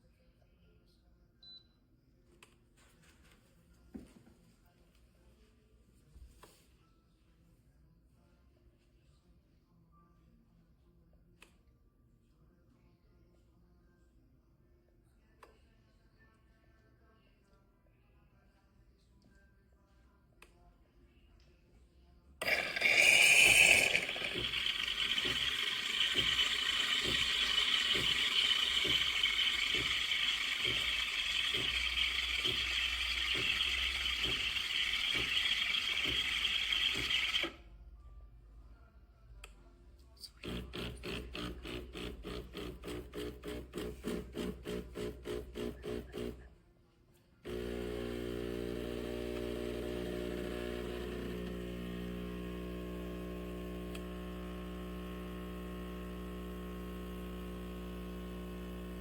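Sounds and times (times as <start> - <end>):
steady machine hum: 22.4 - 37.5, 47.5 - 59.0
espresso machine hissing: 22.4 - 37.6, 40.4 - 46.4, 47.5 - 59.0
espresso machine pump pulsing: 22.4 - 37.6, 40.4 - 46.5, 47.4 - 59.0.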